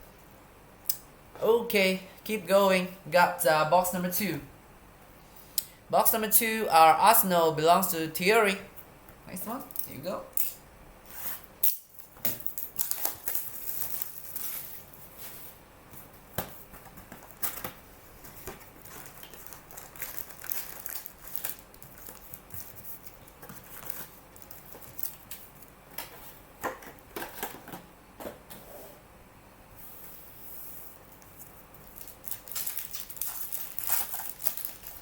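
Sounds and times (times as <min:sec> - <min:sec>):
foil wrappers crinkling: 0:11.8 - 0:15.0, 0:17.0 - 0:26.2, 0:31.2 - 0:35.0.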